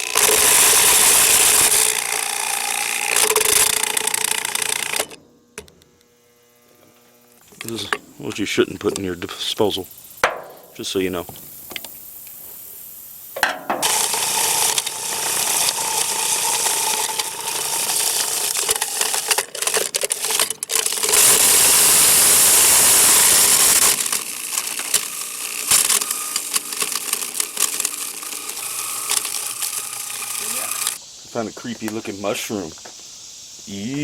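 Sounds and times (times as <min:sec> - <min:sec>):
garbage disposal grinding: 0:00.0 - 0:05.2, 0:13.4 - 0:31.0.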